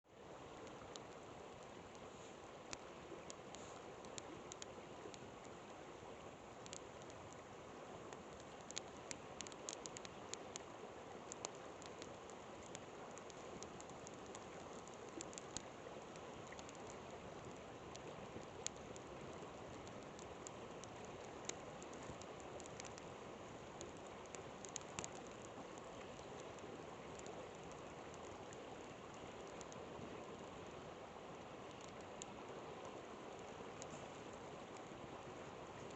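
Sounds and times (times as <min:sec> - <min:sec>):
river flowing: 0:00.1 - 0:35.9
campfire crackling and popping: 0:00.5 - 0:05.6, 0:06.5 - 0:29.9.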